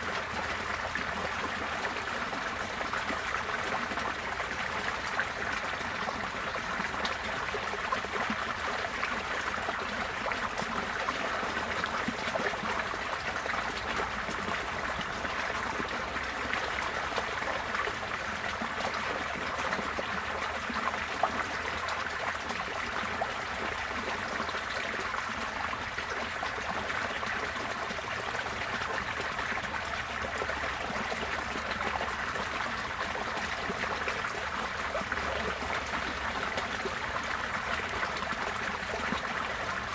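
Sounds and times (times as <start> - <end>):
floodwater rushing and gurgling: 0.0 - 39.9.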